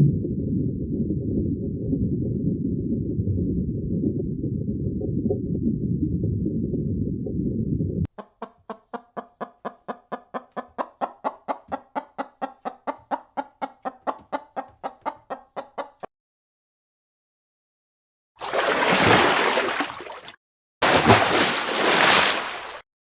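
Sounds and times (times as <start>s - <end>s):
low rumbling noise: 0.0s - 8.1s
chicken clucking: 8.1s - 16.1s.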